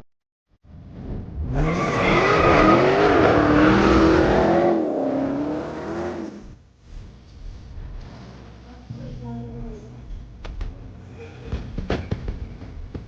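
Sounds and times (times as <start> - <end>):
car engine revving hard: 0.9 - 6.6
tyres spinning and squealing: 1.4 - 6.4.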